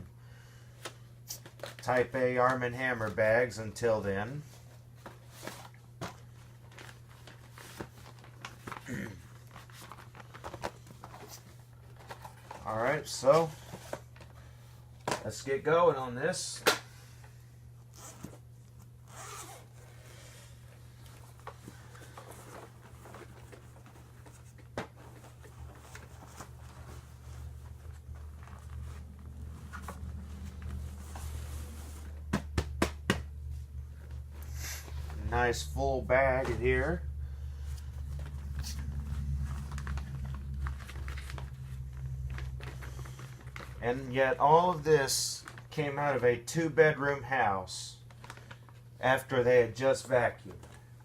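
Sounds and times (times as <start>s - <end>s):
steady low hum: 0.0s - 51.0s
paper bag crinkling and rustling: 5.2s - 12.8s, 20.9s - 32.3s, 38.0s - 44.1s, 48.0s - 49.0s
rustling and sliding: 19.1s - 32.3s.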